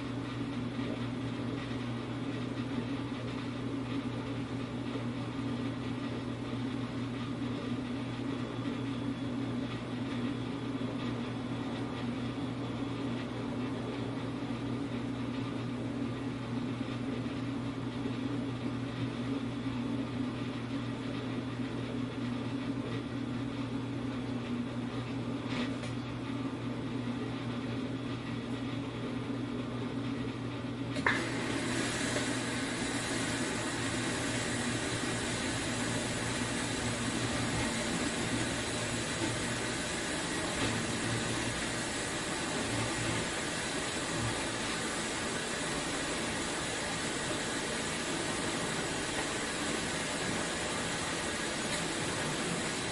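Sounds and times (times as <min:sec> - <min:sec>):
dishwasher motor hum: 0:00.0 - 0:52.9
hissing wash noise: 0:31.0 - 0:52.9.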